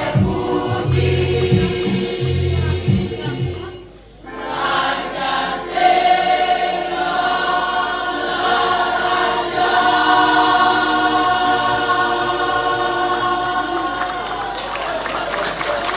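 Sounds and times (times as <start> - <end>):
choir singing a cappella: 0.0 - 14.7.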